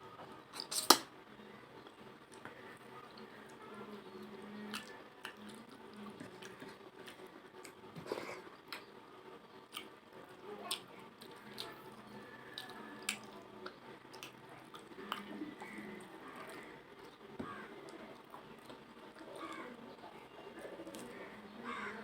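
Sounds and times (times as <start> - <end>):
person chewing food: 9.7 - 9.9, 10.6 - 19.5.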